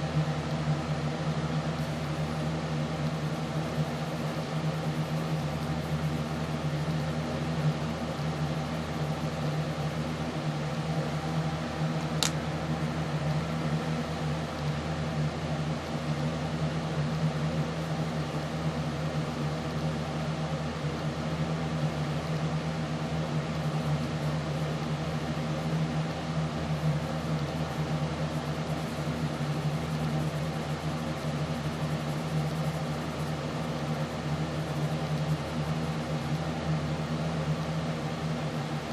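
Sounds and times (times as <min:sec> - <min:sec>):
machine hum: 0:00.0 - 0:38.9
sharp click: 0:12.2 - 0:12.4.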